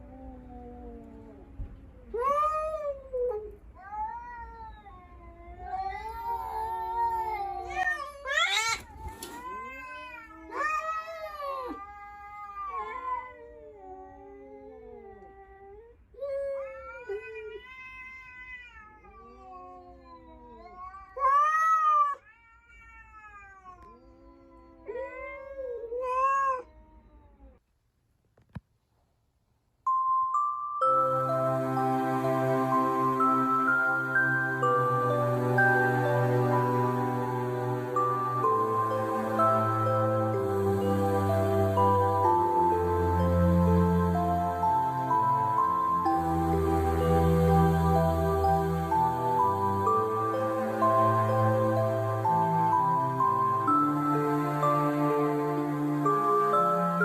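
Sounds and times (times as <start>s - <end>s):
cats yowling: 0.0s - 15.6s, 16.2s - 27.6s.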